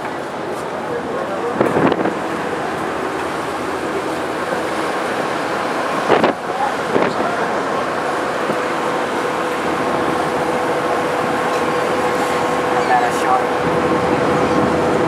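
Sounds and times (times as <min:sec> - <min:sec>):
ferry engines droning: 0:00.0 - 0:15.0
wind noise: 0:01.5 - 0:12.2.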